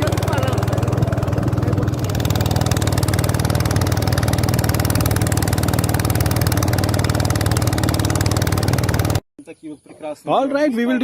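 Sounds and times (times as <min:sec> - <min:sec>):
boat motor running: 0:00.0 - 0:09.2.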